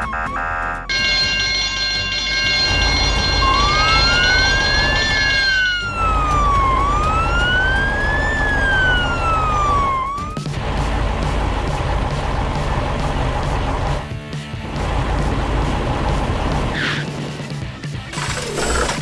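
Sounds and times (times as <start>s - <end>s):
police siren wailing: 0.0s - 14.0s
held musical chord: 0.9s - 10.0s
low engine rumble: 0.9s - 17.2s.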